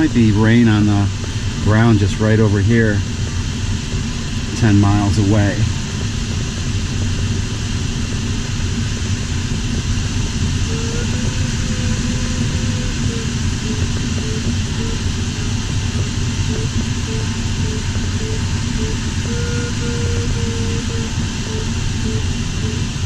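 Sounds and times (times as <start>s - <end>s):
electronic variometer beeps: 10.6s - 15.2s, 15.9s - 23.0s.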